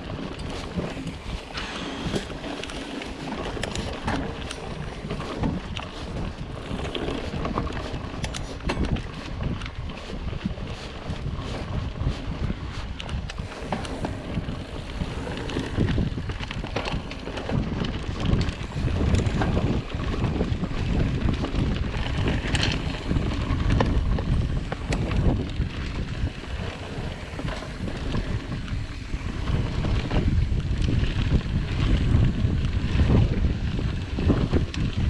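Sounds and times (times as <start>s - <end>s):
bike clicks and rattles: 0.0s - 35.0s
bike tyres rumbling on dirt: 0.0s - 35.0s
wind buffeting microphone: 0.0s - 35.0s.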